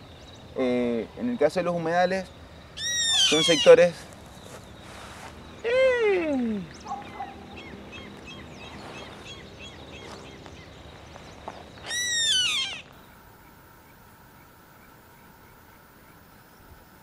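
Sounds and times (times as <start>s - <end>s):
faint bird chirps: 2.1s - 16.8s
bird call rising and falling: 2.8s - 13.1s.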